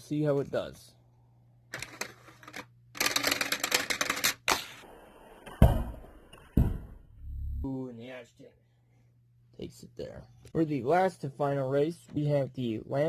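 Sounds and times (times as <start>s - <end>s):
toy cars rattling down plastic track: 1.8s - 4.5s.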